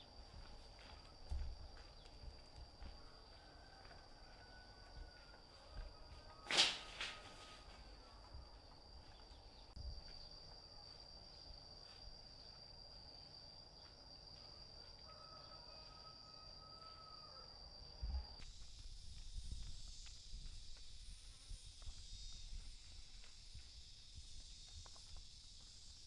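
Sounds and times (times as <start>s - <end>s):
high-pitched insect buzz: 17.8s - 26.0s.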